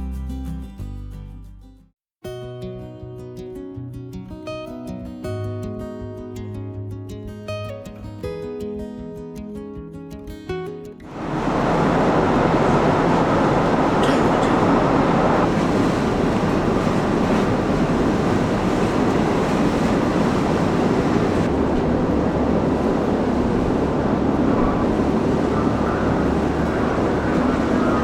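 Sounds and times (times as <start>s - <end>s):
acoustic guitar music: 0.0s - 11.2s
vehicle running noise: 11.1s - 28.0s.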